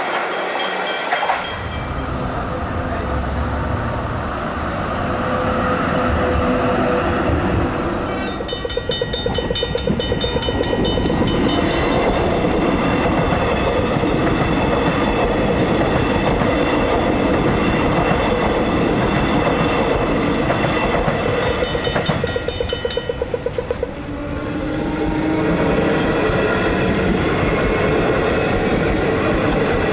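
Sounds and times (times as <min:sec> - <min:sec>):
electric train passing: 0:00.0 - 0:29.9
fast even clicking: 0:08.3 - 0:11.9, 0:21.4 - 0:24.0.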